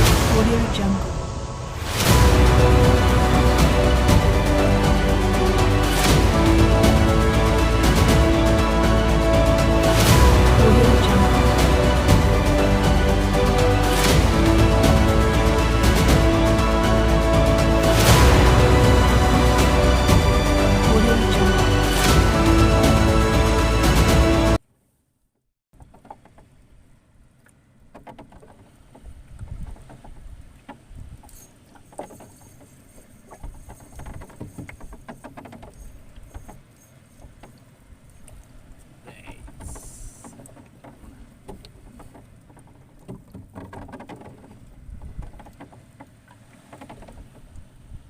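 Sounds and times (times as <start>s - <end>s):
seawater sloshing and lapping: 27.3s - 48.0s
small taps and knocks: 27.4s - 32.3s.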